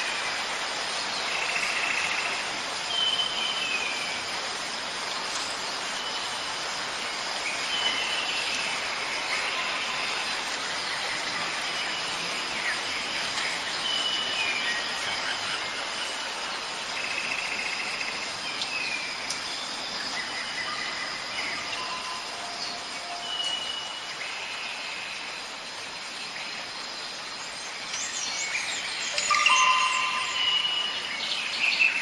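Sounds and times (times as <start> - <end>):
steady rain hiss: 0.0 - 32.0
high bird calls: 28.4 - 32.0.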